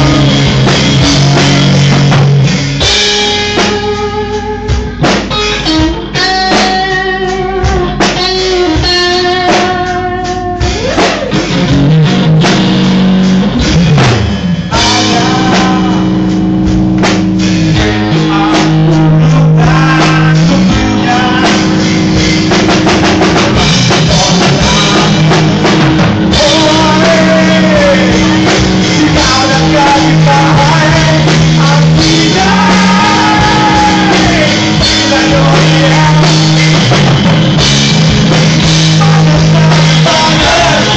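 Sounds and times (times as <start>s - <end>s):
person singing: 0.0s - 1.6s, 14.7s - 16.3s, 17.9s - 21.9s, 23.9s - 36.8s, 38.9s - 40.9s
bass guitar: 0.0s - 40.9s
drum kit: 0.0s - 40.9s
electric guitar: 0.0s - 40.9s.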